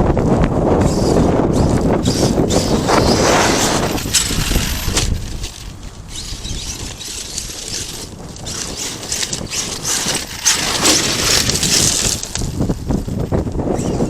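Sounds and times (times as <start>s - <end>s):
rc truck tyres crunching stones: 0.2s - 14.0s
rough uneven clatter: 3.0s - 13.4s.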